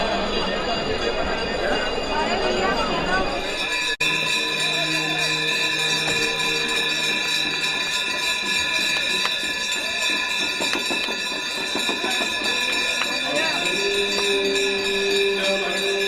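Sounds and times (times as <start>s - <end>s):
bells jingling and ringing: 0.0s - 16.0s
devotional music: 3.6s - 16.0s.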